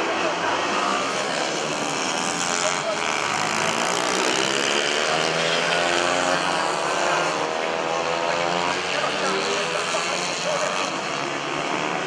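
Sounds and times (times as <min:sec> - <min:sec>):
mini bike engines racing: 0:00.0 - 0:12.0.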